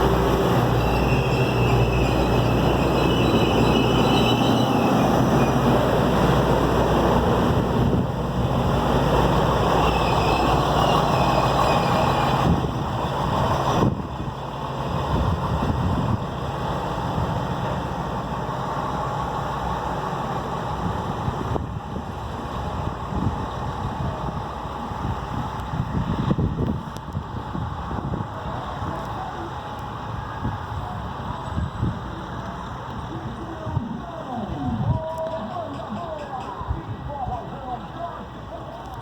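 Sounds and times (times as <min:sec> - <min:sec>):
light rail engine hum: 0:00.0 - 0:39.0
rail noise: 0:00.0 - 0:39.0.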